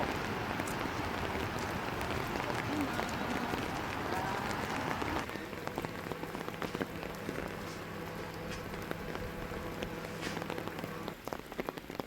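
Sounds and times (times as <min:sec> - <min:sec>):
rain drops ticking: 0:00.0 - 0:12.0
low hum: 0:03.0 - 0:11.2.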